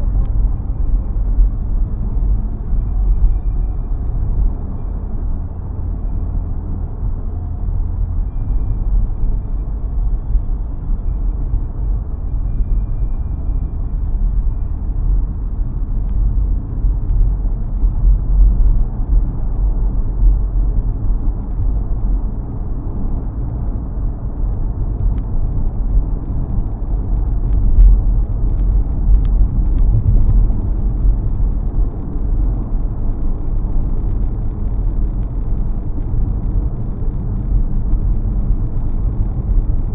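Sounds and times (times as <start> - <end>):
car engine: 0.0 - 39.9
tyre and road noise: 0.0 - 39.9
faint ticks: 11.8 - 39.9.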